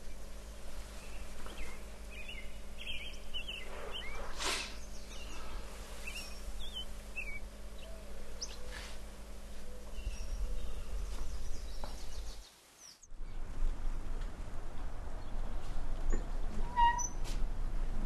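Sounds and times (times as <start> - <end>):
low steady hum: 0.0 - 12.5, 13.1 - 16.8
small birds chirping: 0.0 - 13.4
soft rush of noise: 0.0 - 16.6.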